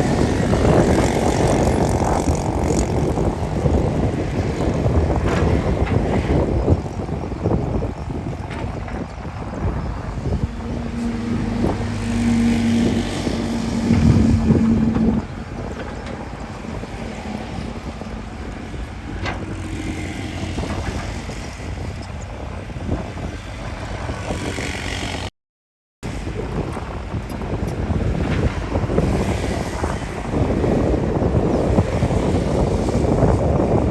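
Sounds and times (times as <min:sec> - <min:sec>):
diesel engine droning: 0:07.4 - 0:22.5.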